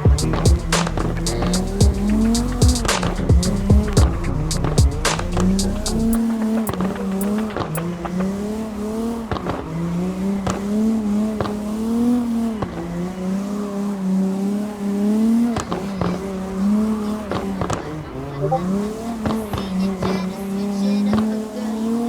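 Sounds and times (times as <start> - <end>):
sharp engine ticks: 0.0 - 8.4
engine running with whine: 0.0 - 22.0.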